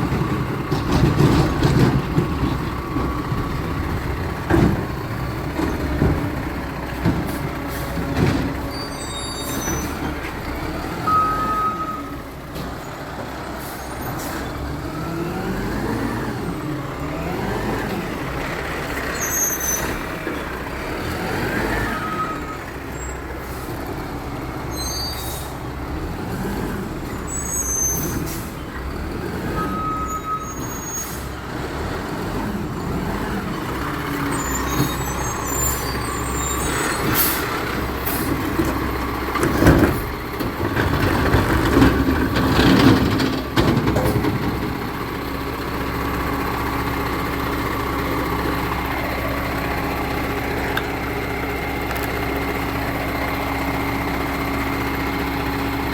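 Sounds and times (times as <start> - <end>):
loud clanks and clatter: 0.0 - 8.8, 33.6 - 45.1
truck diesel engine running: 0.0 - 55.9.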